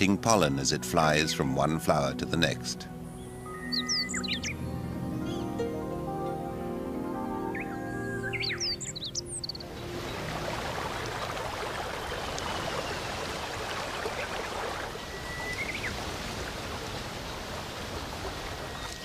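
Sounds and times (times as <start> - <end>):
running water rushing: 8.6 - 19.0.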